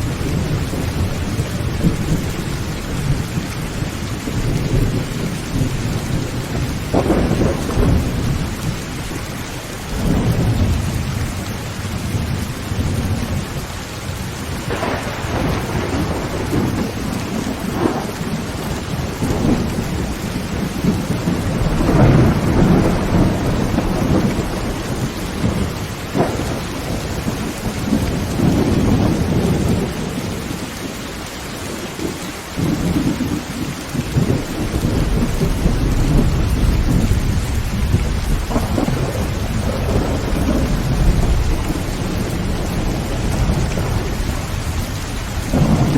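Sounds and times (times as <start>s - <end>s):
thunder rumbling: 0.0s - 31.0s, 31.7s - 45.9s
rain drumming on tin roof: 0.0s - 45.9s
thunder cracks: 4.4s - 9.1s, 14.6s - 30.6s, 31.7s - 45.9s.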